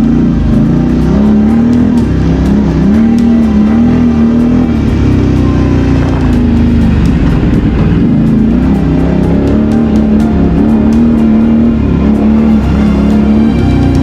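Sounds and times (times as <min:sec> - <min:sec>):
quad bike engine revving: 0:00.0 - 0:14.0.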